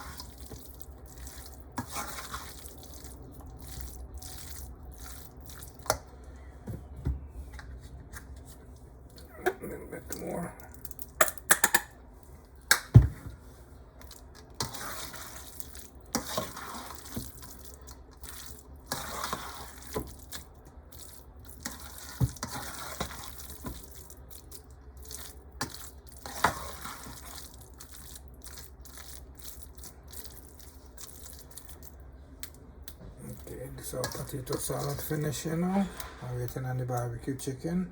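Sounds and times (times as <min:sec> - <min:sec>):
spoon stirring wet salad: 0:00.0 - 0:06.3, 0:14.0 - 0:37.2.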